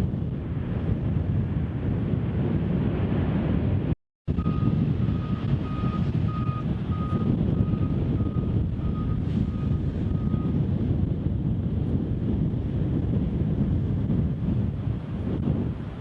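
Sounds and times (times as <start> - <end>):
wind buffeting microphone: 0.0 - 16.0
reversing alarm beeping: 4.3 - 10.6.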